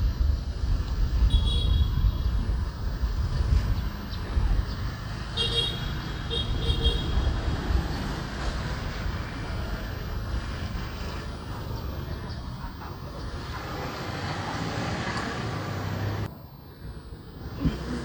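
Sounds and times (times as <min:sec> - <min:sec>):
motorbike engine rumble: 0:00.0 - 0:18.0
traffic noise: 0:00.0 - 0:18.0
vehicle horn beeping: 0:01.2 - 0:02.2, 0:05.2 - 0:07.4.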